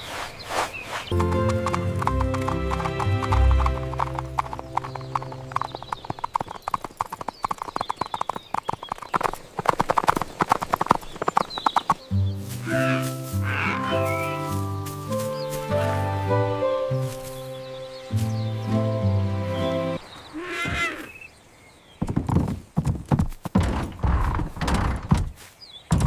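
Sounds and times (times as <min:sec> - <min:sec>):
background music with low notes: 0:01.1 - 0:05.9, 0:12.0 - 0:20.0
clip-clop hoofbeats: 0:01.1 - 0:16.0, 0:22.0 - 0:24.5.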